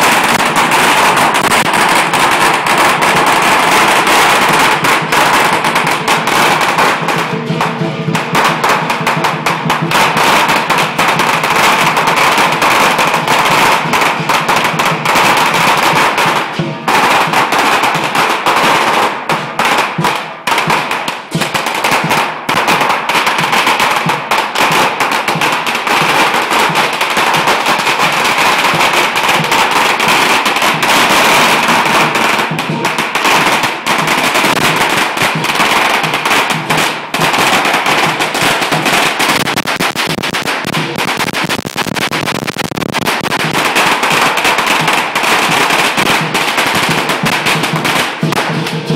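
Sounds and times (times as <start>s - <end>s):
firecrackers popping: 0.0s - 48.9s.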